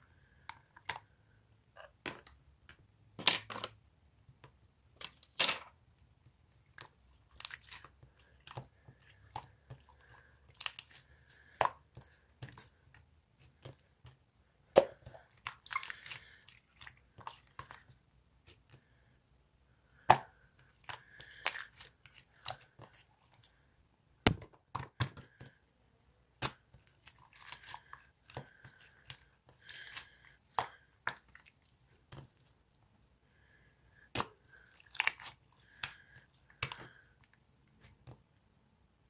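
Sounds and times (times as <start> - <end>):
slime squelching and popping: 5.0 - 19.0, 20.0 - 23.6, 26.3 - 32.6, 34.0 - 38.3.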